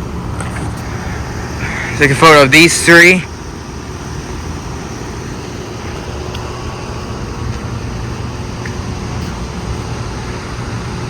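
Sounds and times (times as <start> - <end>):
air conditioner units humming: 0.0 - 11.0.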